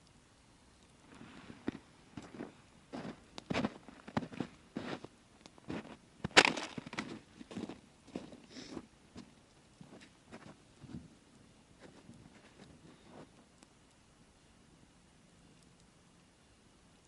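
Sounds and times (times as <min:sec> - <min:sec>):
campfire crackling: 0:00.0 - 0:17.0
fire pops and snaps: 0:05.4 - 0:07.6.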